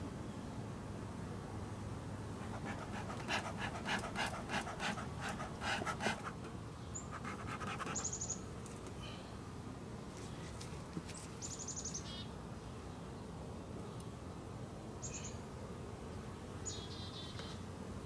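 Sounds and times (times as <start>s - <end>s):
bellows puffing air: 2.4s - 6.4s.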